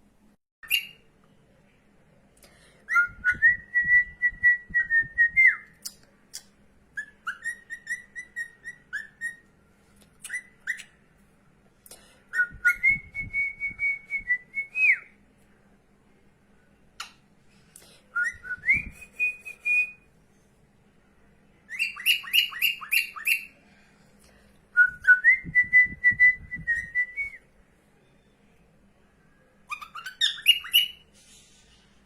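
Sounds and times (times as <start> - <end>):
cockatiel whistling a tune: 0.6 - 1.0, 6.9 - 9.5, 10.2 - 11.0, 12.3 - 15.2, 18.1 - 20.1, 21.7 - 23.5, 29.7 - 31.0
cockatiel chirps: 7.0 - 9.4, 29.7 - 31.0.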